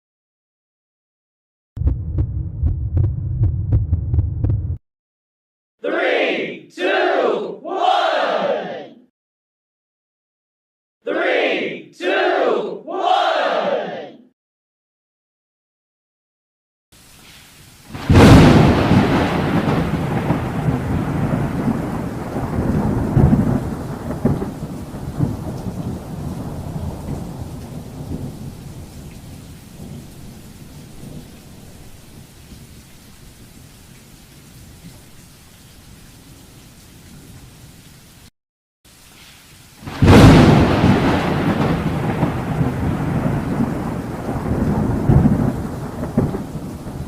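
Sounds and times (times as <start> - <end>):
loud thunderclap: 1.8 - 4.8, 17.9 - 28.9, 39.9 - 47.0
rolling thunder rumble: 1.8 - 4.8, 17.9 - 29.0, 39.9 - 47.0
rain hiss: 17.0 - 38.3, 38.9 - 47.0.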